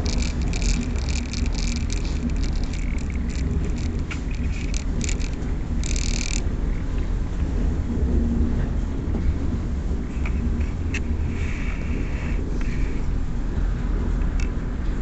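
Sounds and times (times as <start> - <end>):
carriage rattles and clicks: 0.0 - 7.0
train running gear rumble: 0.0 - 15.0.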